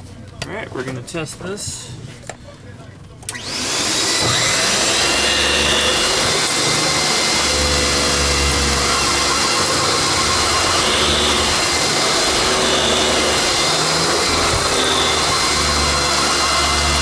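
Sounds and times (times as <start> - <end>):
vacuum cleaner running: 3.3 - 17.0
spinning brush: 3.4 - 17.0.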